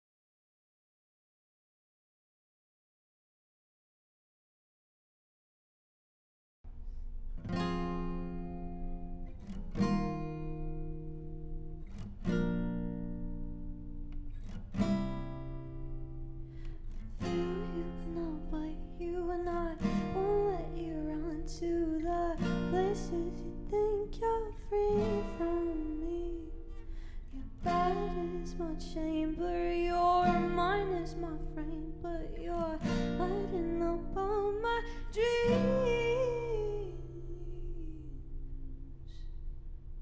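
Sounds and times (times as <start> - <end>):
acoustic guitar strumming: 7.4 - 39.1
person singing: 17.3 - 26.8, 27.4 - 38.8.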